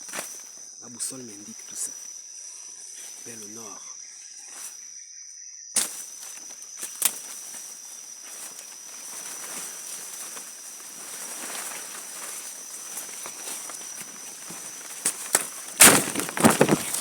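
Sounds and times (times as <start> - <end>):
high-pitched insect drone: 0.0 - 17.0
footsteps crunching through leaf litter: 5.8 - 17.0
sharp twig cracks: 6.8 - 7.3.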